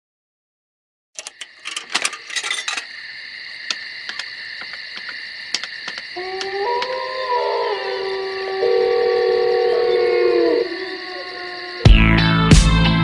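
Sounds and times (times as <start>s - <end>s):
metal clicks and rattles: 1.2s - 2.9s, 3.7s - 6.1s
sled dogs whining: 5.6s - 11.9s
dog howling: 6.1s - 11.9s.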